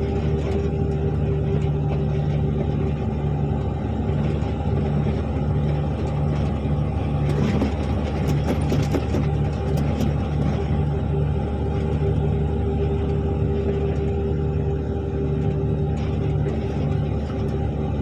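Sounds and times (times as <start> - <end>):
rattles and knocks: 0.0 - 11.0, 15.4 - 18.0
diesel engine droning: 0.0 - 18.0.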